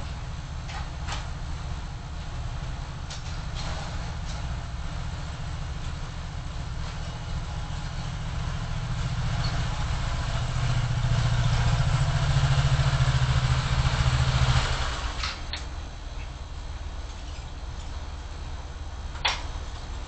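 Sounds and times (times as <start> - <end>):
vehicle engine hum and road noise: 0.0 - 20.0.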